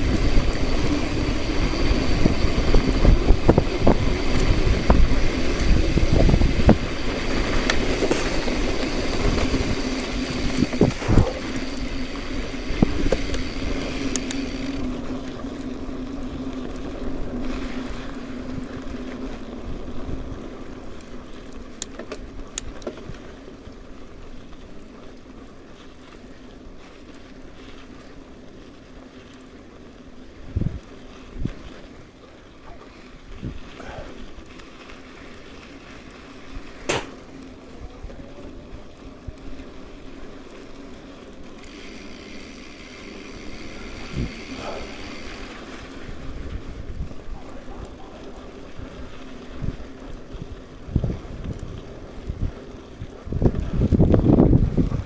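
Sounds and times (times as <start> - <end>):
motor high whine: 0.0 - 15.1, 41.6 - 45.6
motor humming: 0.0 - 15.1, 41.6 - 45.6.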